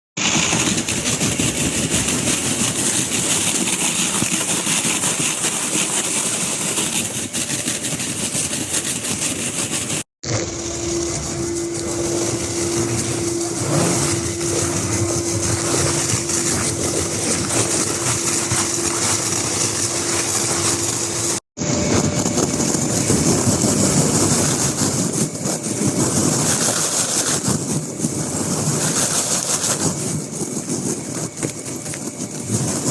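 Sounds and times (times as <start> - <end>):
rotary brush machine running: 0.2 - 32.9
steady hum: 10.2 - 32.9.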